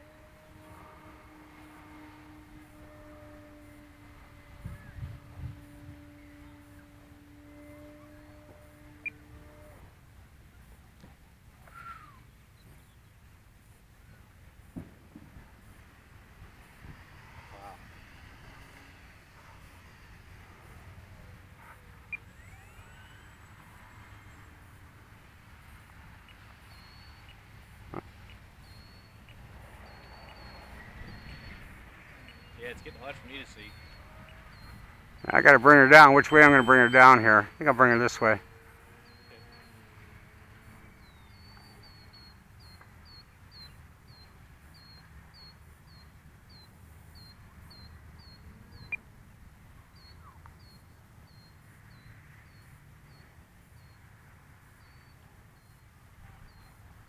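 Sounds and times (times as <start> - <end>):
low steady rumble: 0.0 - 45.0
faint high chirps: 11.6 - 13.1, 21.2 - 24.8, 25.6 - 40.0.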